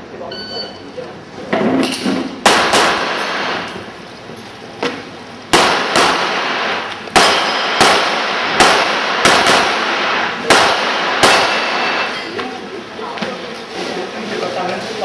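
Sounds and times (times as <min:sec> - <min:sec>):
handgun shots with echo: 0:02.4 - 0:03.8, 0:05.5 - 0:12.2.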